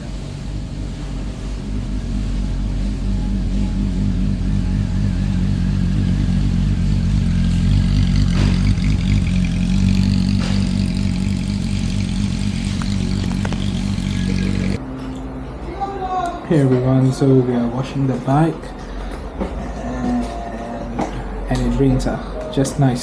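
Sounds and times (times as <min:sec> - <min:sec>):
motor running steadily: 0:00.0 - 0:14.8.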